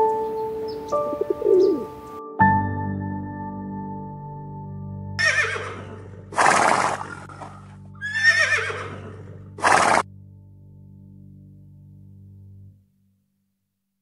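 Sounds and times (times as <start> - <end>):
faint music drone: 0.0 - 13.0
horse whinnying: 5.2 - 10.0.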